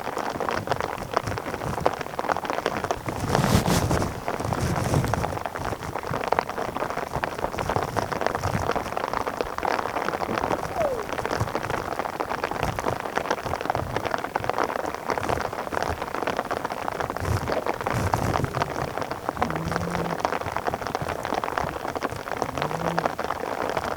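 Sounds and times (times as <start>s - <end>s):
steady rain falling: 0.0s - 23.9s.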